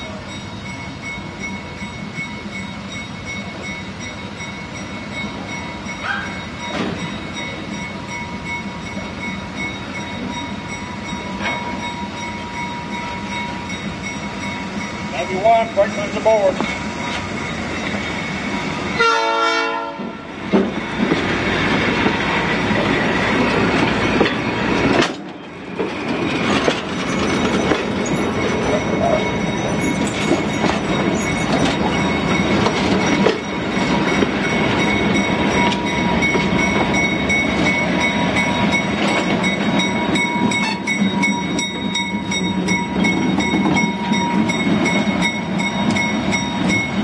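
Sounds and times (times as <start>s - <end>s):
train wheels rumbling on rails: 0.0s - 47.0s
train horn blast: 19.0s - 20.2s.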